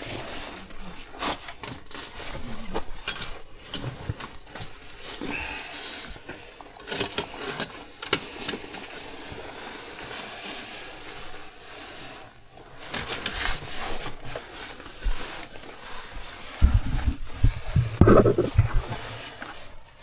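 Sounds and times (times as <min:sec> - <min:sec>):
footsteps on loose slate: 0:16.6 - 0:19.0
stone knocking on stone: 0:16.7 - 0:18.8.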